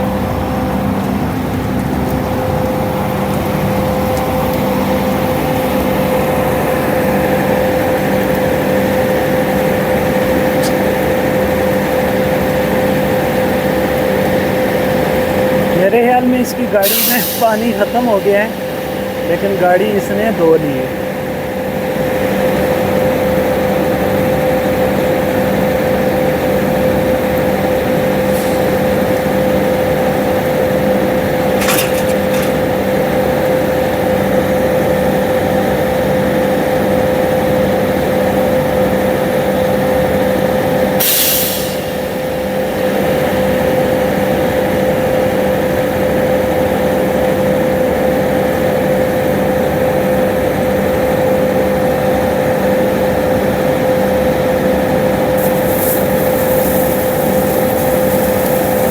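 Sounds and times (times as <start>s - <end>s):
diesel engine whining: 0.0s - 58.9s
air hisses: 16.8s - 18.0s, 41.0s - 42.1s, 55.4s - 58.9s.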